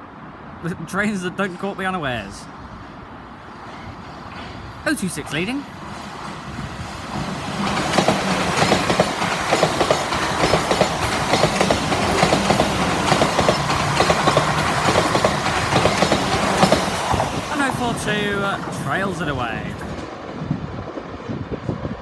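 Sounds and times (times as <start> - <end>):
train traction hum: 0.0 - 22.0
wheels clicking over rail joints: 5.4 - 17.5.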